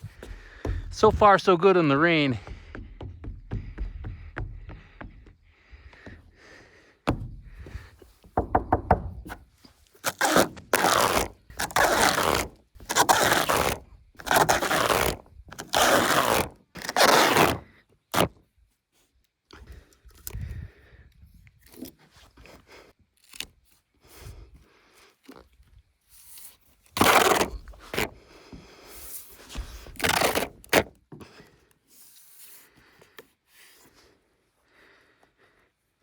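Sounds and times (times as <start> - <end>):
tape rasping and tearing: 9.2 - 18.4, 23.1 - 23.8, 26.2 - 28.1, 29.2 - 31.0.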